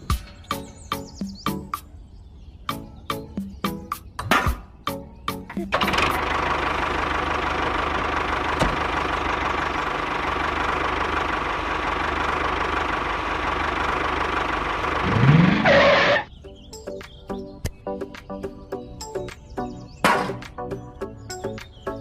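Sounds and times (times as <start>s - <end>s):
engine running and revving: 5.7s - 16.3s.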